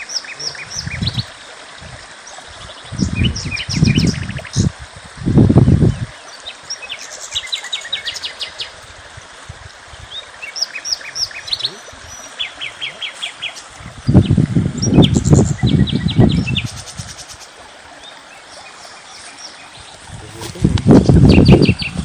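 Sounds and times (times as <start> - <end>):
small birds chirping: 0.0 - 4.7, 9.9 - 22.0.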